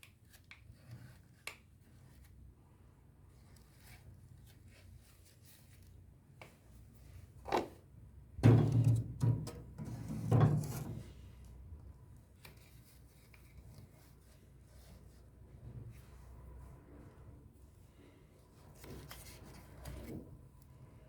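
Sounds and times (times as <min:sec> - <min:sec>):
thuds and rattling on hard surface: 0:08.4 - 0:11.1.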